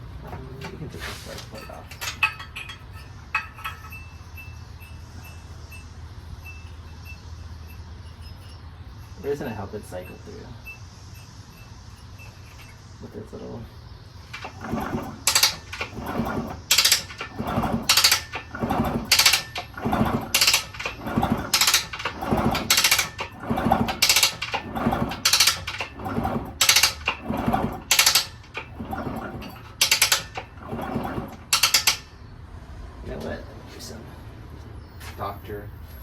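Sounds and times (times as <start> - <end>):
crunching in the engine: 0.0 - 32.3
engine being turned over: 0.1 - 4.2, 14.1 - 32.1
kickstart mechanism clicking: 14.2 - 32.1.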